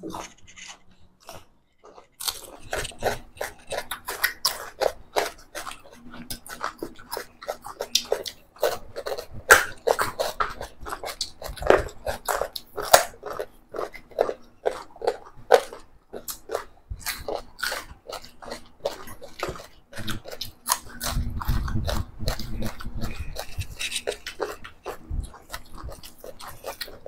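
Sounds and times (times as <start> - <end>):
wet chewing and lip-smacking: 0.0 - 27.0.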